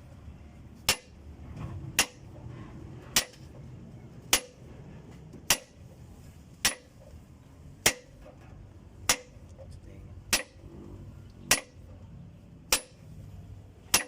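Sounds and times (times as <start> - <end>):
hammer striking with metallic ring: 2.0 - 2.2, 3.2 - 3.5, 4.3 - 4.6, 5.5 - 5.8, 6.6 - 7.0, 9.1 - 9.4, 10.3 - 10.6, 11.5 - 11.8, 12.7 - 13.1.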